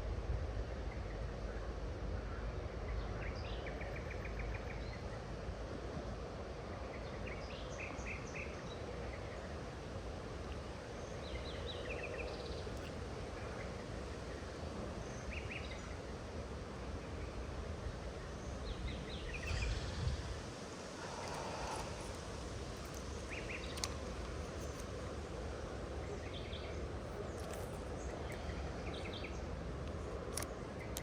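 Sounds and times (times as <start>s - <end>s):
small birds chirping: 18.1s - 31.0s.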